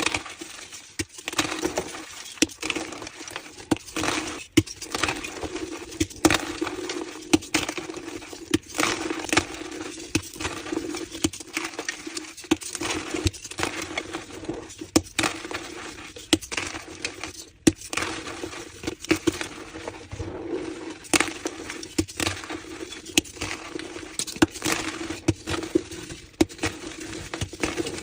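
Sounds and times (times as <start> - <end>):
chalk blocks crushed by hand: 21.0 - 28.0.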